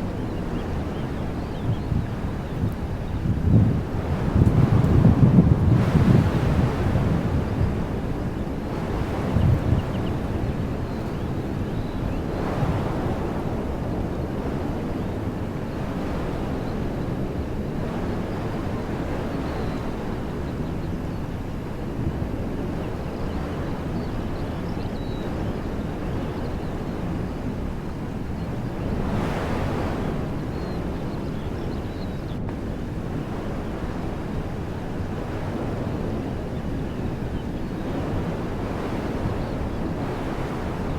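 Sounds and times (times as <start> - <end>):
wind buffeting microphone: 0.0 - 40.9
wind through trees: 0.0 - 40.9.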